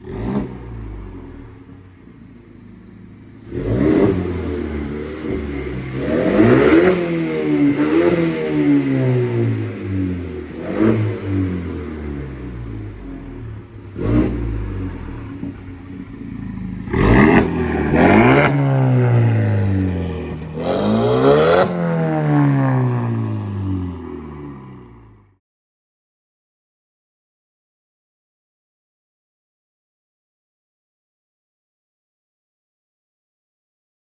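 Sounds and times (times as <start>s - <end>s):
throaty exhaust revving from idle: 0.0s - 25.4s.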